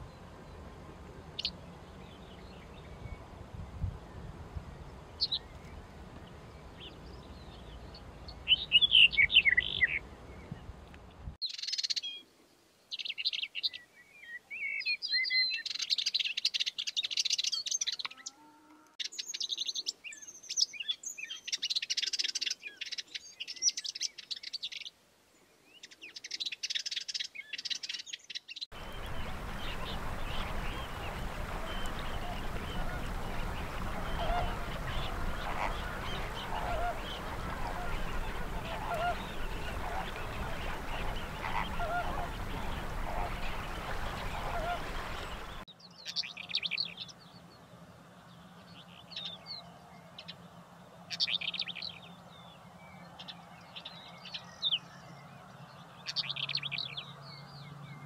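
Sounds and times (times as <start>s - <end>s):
background hiss: 0.0s - 18.0s, 18.6s - 52.8s
bird singing high phrases: 6.8s - 10.6s, 12.9s - 24.9s, 25.7s - 47.4s.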